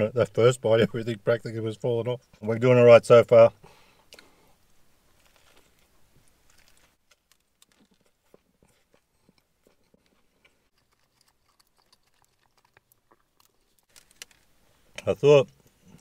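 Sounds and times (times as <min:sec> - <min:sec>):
faint chewing with mouth clicks: 0:04.0 - 0:14.4.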